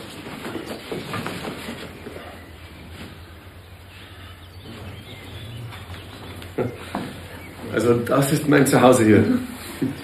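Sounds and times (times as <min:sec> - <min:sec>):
low steady hum: 0:00.0 - 0:10.0
faint bird chirps: 0:02.1 - 0:07.9.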